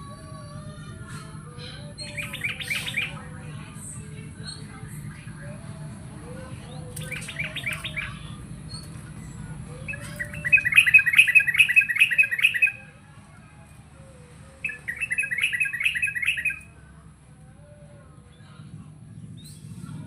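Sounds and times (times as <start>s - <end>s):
low steady hum: 0.0s - 20.0s
bird singing rapid notes: 1.8s - 5.4s, 6.6s - 12.9s, 14.4s - 16.7s.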